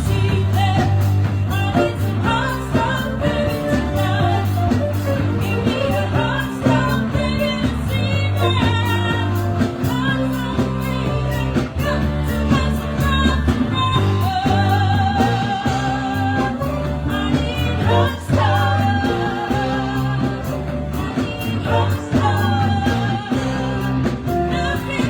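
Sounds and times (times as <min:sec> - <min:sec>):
drum beat: 0:00.0 - 0:11.0
bass line: 0:00.0 - 0:25.0.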